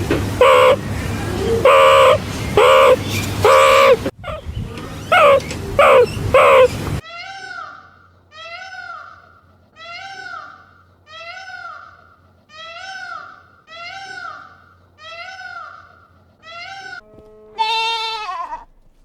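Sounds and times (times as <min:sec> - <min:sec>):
cat meowing: 0:00.4 - 0:00.8, 0:01.5 - 0:04.4, 0:05.1 - 0:06.7, 0:16.5 - 0:18.8.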